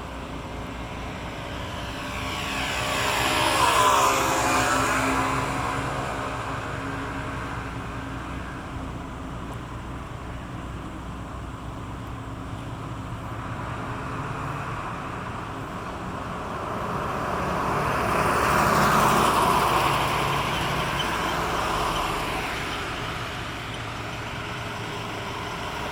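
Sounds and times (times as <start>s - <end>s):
passing rush of noise: 0.0s - 8.5s
low engine drone: 0.0s - 25.9s.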